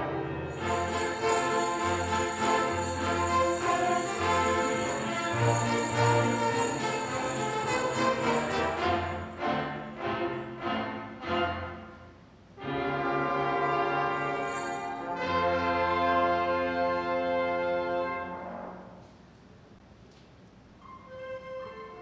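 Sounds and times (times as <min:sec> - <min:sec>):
orchestra of strings and brass: 0:00.0 - 0:19.2, 0:20.8 - 0:22.0.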